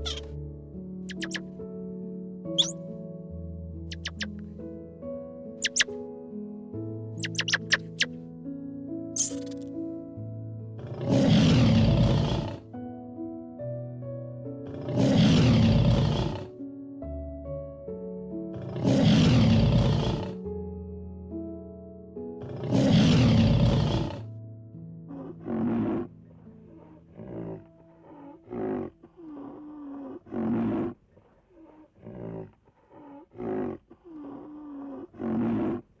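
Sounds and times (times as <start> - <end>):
animal roars: 0.0 - 0.2, 10.8 - 12.6, 14.6 - 16.5, 18.5 - 20.4, 22.4 - 24.3, 25.1 - 26.1, 26.7 - 35.9
animal calling roughly: 0.0 - 0.3, 1.1 - 1.4, 3.9 - 4.4, 5.6 - 5.9, 7.2 - 8.1
background music: 0.0 - 29.8.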